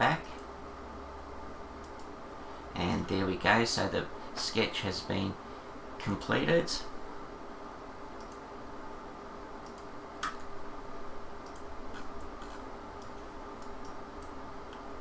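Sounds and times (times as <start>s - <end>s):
faint steady hum: 0.0s - 15.0s
computer mouse clicking: 1.8s - 2.1s, 8.2s - 8.4s, 9.6s - 10.5s, 11.4s - 14.9s.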